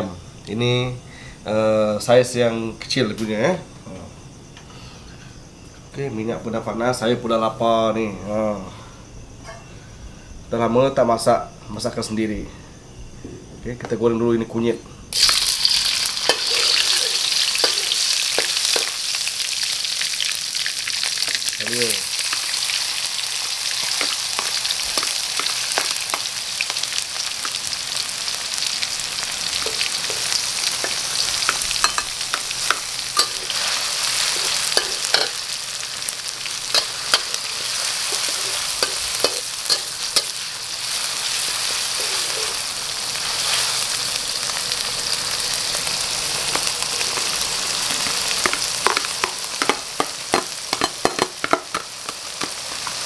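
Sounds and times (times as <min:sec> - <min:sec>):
food sizzling in hot oil: 0:15.1 - 0:53.0
metal spatula scraping wok: 0:15.8 - 0:18.9, 0:29.6 - 0:35.5, 0:36.7 - 0:43.8.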